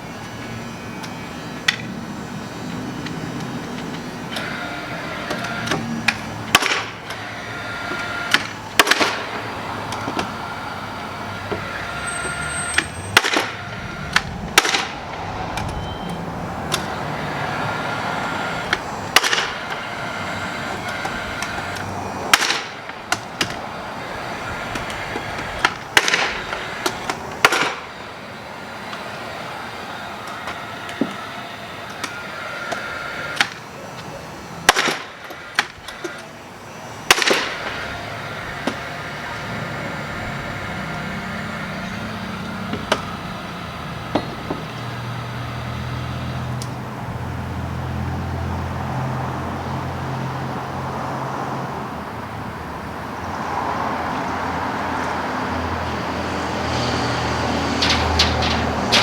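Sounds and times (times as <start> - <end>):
mechanical hum: 0.0 - 59.0
sharp knocks and bangs: 5.3 - 7.3, 8.3 - 10.3, 12.7 - 15.8, 20.6 - 23.6, 24.4 - 27.9, 34.6 - 35.7, 56.8 - 59.0.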